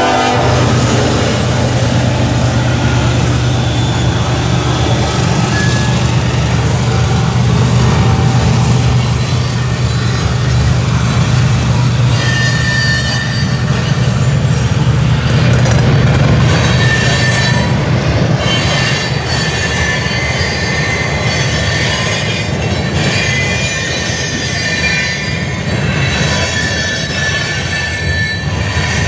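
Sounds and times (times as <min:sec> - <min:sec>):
freight train rumbling past: 0:00.0 - 0:29.0
train wheels squealing: 0:00.0 - 0:29.0.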